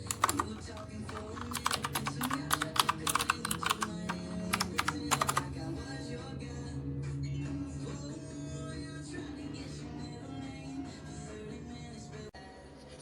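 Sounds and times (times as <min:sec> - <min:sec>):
mechanical keyboard keys clacking: 0:00.0 - 0:05.5
soft background music: 0:00.0 - 0:13.0.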